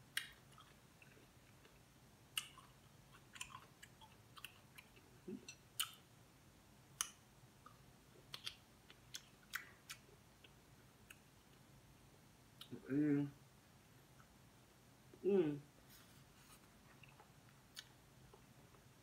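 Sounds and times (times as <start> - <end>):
chewing with wet lip smacks: 2.4 - 5.1.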